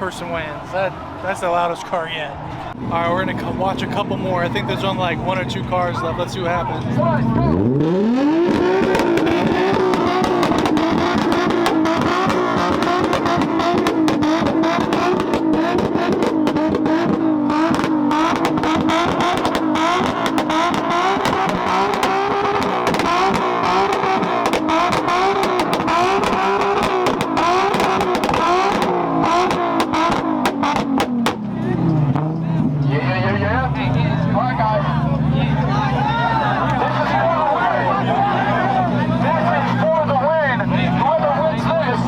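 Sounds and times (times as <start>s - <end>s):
car engine at high revs: 2.6s - 42.0s
exhaust pops crackling: 2.7s - 7.1s, 7.7s - 32.5s.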